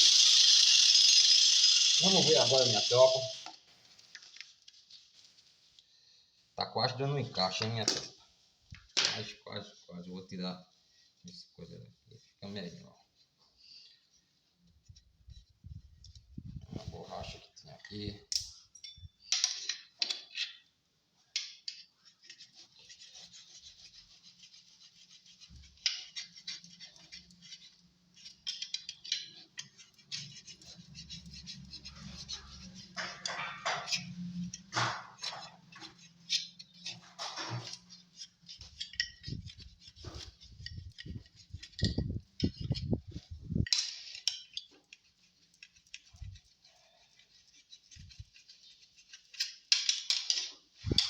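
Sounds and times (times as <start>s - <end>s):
hand rubbing and scraping box: 22.3s - 44.2s.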